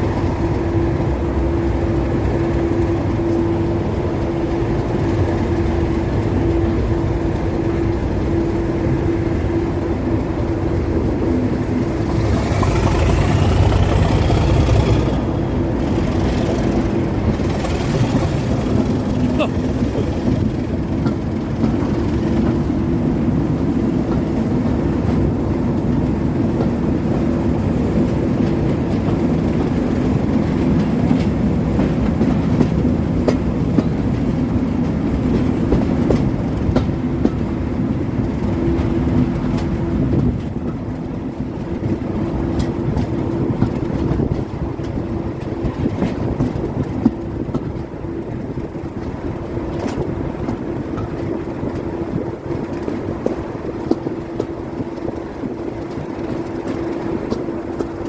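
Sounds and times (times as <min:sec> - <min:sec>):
locomotive engine droning: 0:00.0 - 0:58.0
train wheels clicking over rails: 0:00.0 - 0:58.0.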